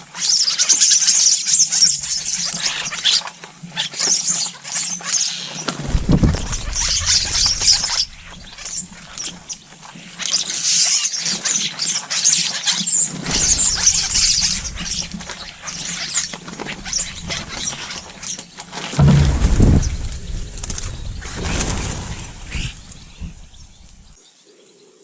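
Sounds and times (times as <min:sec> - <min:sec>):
small birds chirping: 0:13.0 - 0:18.4.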